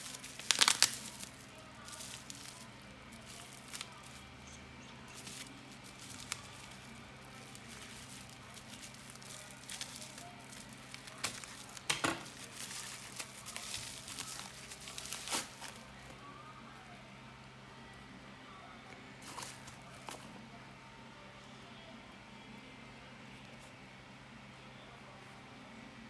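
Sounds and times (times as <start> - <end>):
packaging crinkling: 0.0 - 16.2, 19.2 - 20.3.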